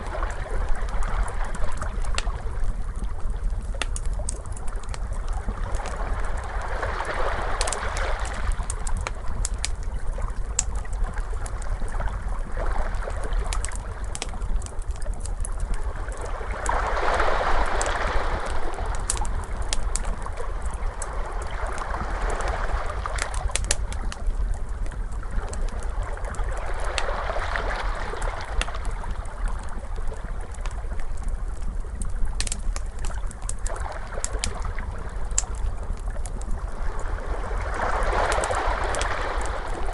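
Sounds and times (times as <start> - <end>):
wood fire crackling: 0.0 - 39.9
ocean waves washing: 16.1 - 23.6, 36.8 - 39.9.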